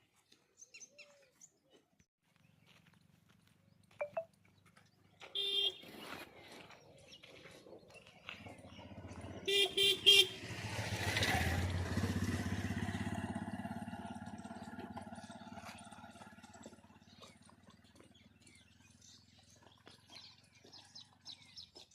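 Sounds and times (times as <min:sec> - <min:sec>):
vehicle horn honking: 0:05.3 - 0:05.9, 0:09.4 - 0:10.6
vehicle engine passing by: 0:08.2 - 0:20.0.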